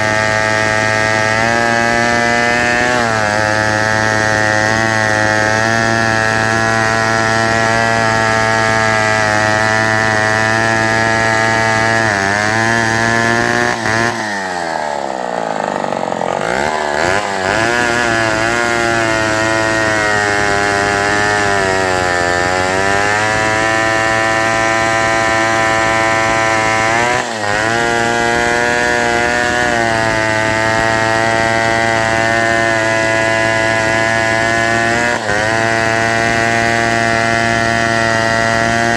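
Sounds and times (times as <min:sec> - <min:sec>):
chainsaw cutting: 0:00.0 - 0:38.9.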